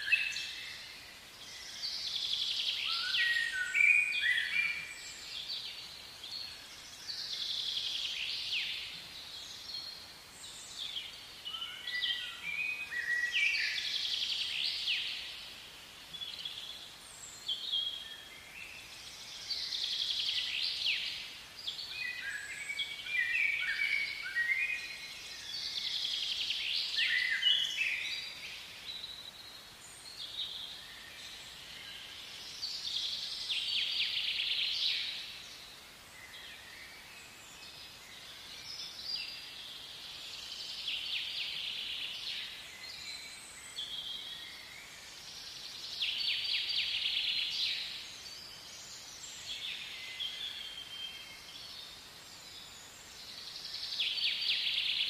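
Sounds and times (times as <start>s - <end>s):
faint outdoor background: 0.0s - 55.0s
songbirds singing: 0.0s - 55.0s.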